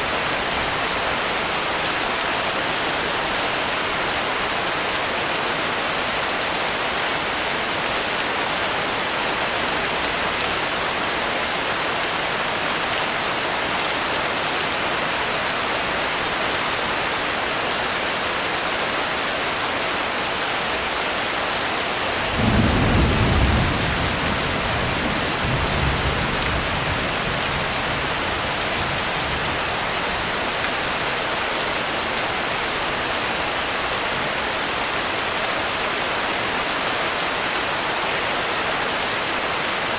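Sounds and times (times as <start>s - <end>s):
steady rainfall hiss: 0.0s - 39.9s
thunder rumbling: 22.3s - 29.6s.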